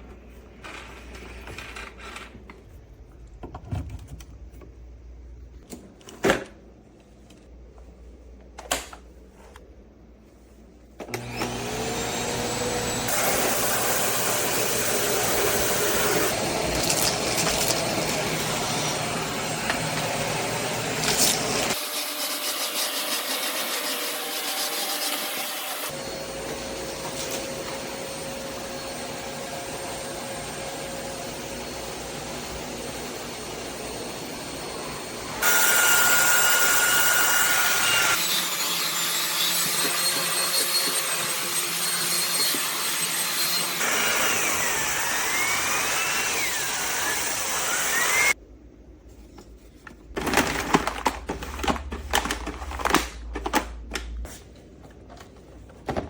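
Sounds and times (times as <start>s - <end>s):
vacuum cleaner motor whining: 11.0s - 48.4s.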